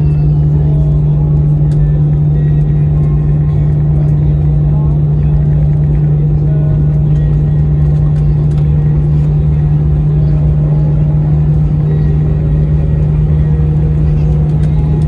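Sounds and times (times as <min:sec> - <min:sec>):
airliner cabin engine hum: 0:00.0 - 0:15.0.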